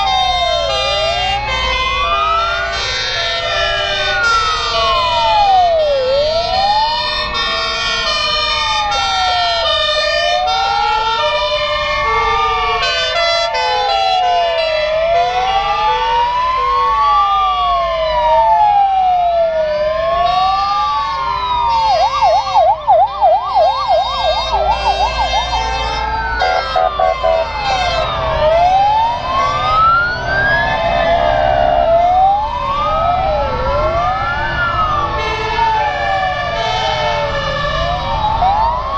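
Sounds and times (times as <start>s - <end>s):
fire engine sirens wailing: 0.0s - 38.9s
truck engines rumbling: 0.0s - 38.9s.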